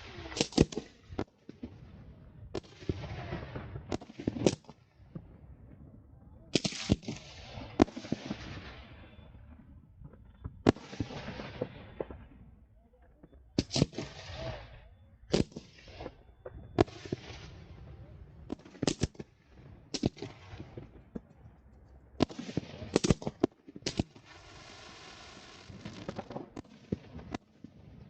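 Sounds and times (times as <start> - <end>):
light firework pops: 0.0 - 1.8, 2.5 - 5.4, 10.0 - 12.4, 18.5 - 19.3, 19.9 - 21.6, 22.2 - 24.3, 25.6 - 28.0
fireworks bangs with echo: 0.0 - 21.4, 22.2 - 28.0
firework hiss: 24.2 - 26.1.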